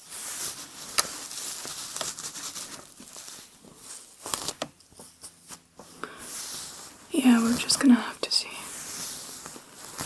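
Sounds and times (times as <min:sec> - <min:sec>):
hair being brushed: 0:05.4 - 0:10.0.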